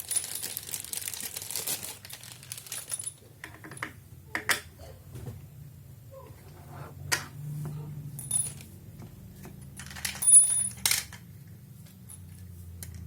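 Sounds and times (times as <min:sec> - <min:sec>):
small metal parts clinking: 0:00.0 - 0:03.9, 0:08.1 - 0:08.8, 0:09.4 - 0:11.3.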